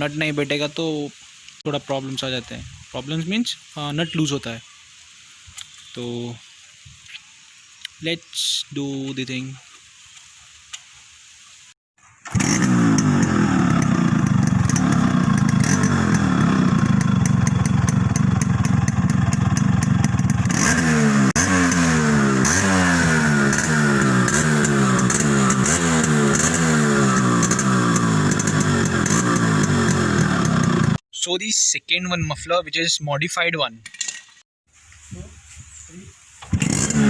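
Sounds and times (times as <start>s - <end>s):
two-stroke engine revving: 12.2s - 31.0s, 36.5s - 37.0s.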